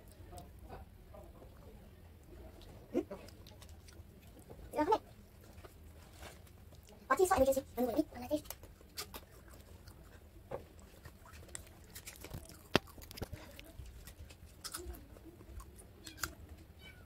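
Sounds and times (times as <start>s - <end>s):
child chewing food: 0.0s - 17.0s.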